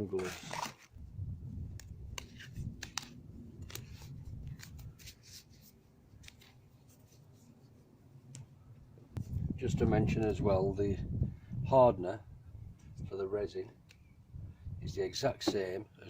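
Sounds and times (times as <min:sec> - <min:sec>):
steady low rumble: 0:01.0 - 0:04.9.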